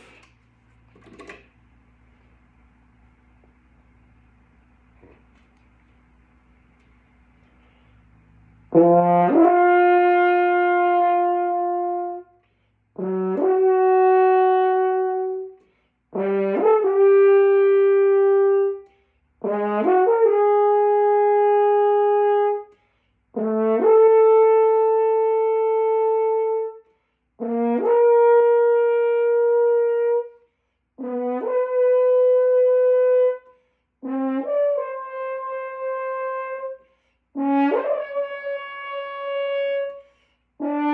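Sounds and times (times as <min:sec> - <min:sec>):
player breathing: 0:00.0 - 0:00.4
brass instrument long tones: 0:08.5 - 0:40.9.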